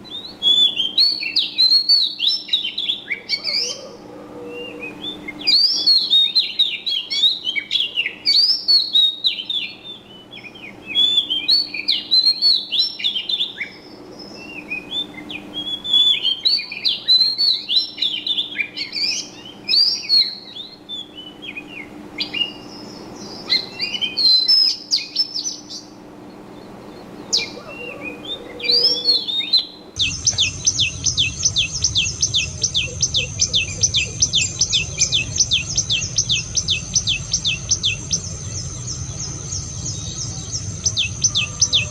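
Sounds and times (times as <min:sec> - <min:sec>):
songbirds chirping and twittering: 0:00.0 - 0:41.9
low hum: 0:25.4 - 0:41.9
fast repeated high chirping: 0:27.4 - 0:41.9.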